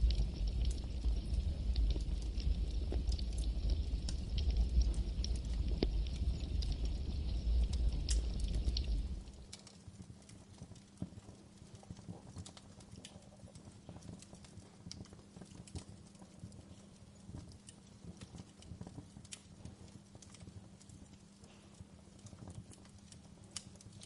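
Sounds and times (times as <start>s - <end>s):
faint low hum: 0.0s - 9.7s
campfire crackling: 0.0s - 24.0s.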